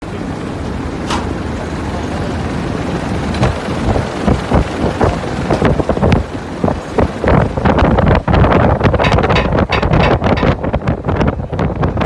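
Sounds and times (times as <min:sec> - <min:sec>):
rushing noise with low rumble: 0:00.0 - 0:12.0
wind buffeting microphone: 0:01.3 - 0:12.0.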